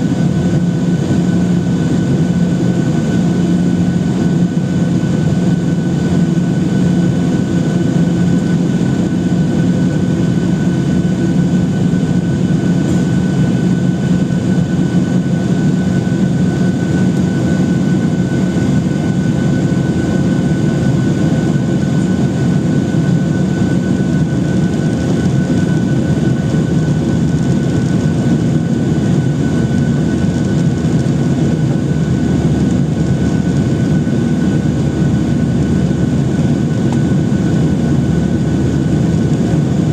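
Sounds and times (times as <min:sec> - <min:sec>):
airplane cabin hum: 0:00.0 - 0:39.9.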